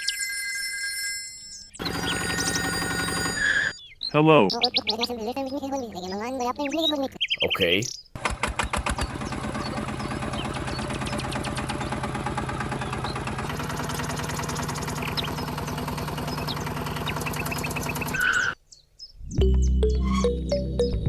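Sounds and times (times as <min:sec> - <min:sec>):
birds chirping: 0:01.5 - 0:21.0
small motor chattering: 0:01.8 - 0:03.7, 0:08.2 - 0:18.6.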